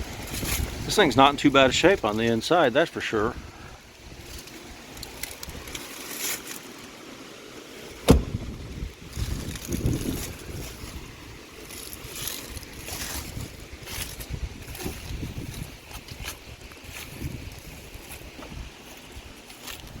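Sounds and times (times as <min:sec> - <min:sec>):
wind rumbling on microphone: 0:00.0 - 0:02.2, 0:03.2 - 0:05.8, 0:08.0 - 0:20.0
microphone handling and rustling: 0:00.0 - 0:02.4, 0:07.9 - 0:20.0
soft thumps: 0:08.0 - 0:08.5.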